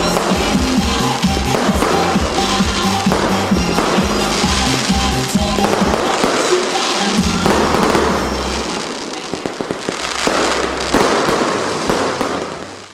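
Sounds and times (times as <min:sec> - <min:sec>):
fireworks crackling and popping: 0:00.0 - 0:12.9.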